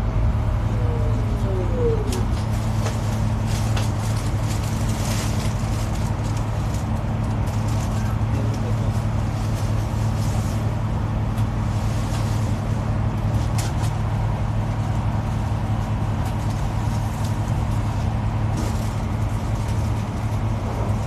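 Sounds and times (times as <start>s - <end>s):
vehicle running hum: 0.0s - 21.0s.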